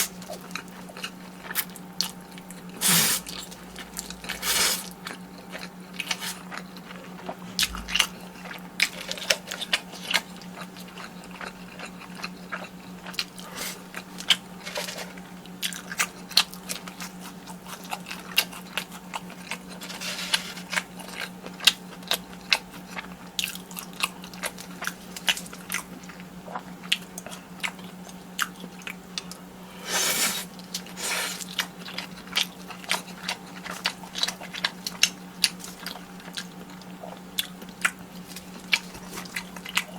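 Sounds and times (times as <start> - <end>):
close chewing and crunching: 0.0 - 39.9
low hum: 6.8 - 8.7.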